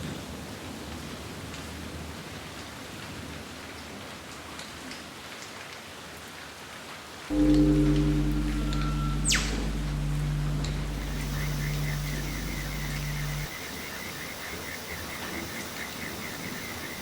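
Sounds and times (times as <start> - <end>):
steady rain: 0.0 - 17.0
music of held steady tones: 7.3 - 17.0.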